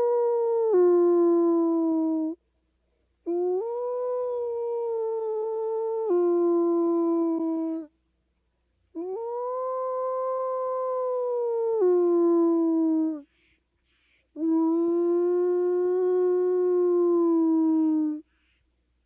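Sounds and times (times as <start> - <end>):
dog howling: 9.0 - 13.2, 14.4 - 18.2
faint breathy puffs: 13.2 - 14.4, 18.2 - 19.0.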